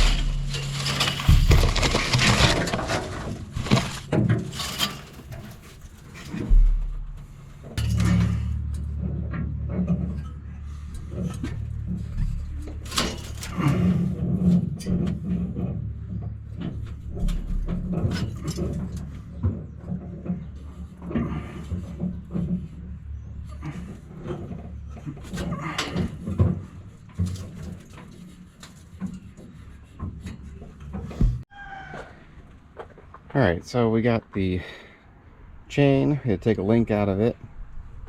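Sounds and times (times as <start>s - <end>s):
low hum: 0.0s - 25.1s
clanks and knocks of hand work: 0.0s - 31.5s.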